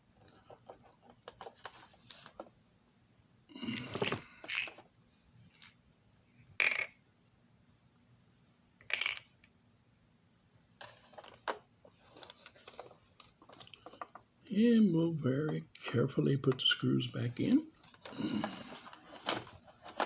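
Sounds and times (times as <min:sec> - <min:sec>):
small parts and tools clattering: 0:03.7 - 0:04.8, 0:06.6 - 0:07.0, 0:08.8 - 0:09.4, 0:10.8 - 0:14.2, 0:17.8 - 0:20.0.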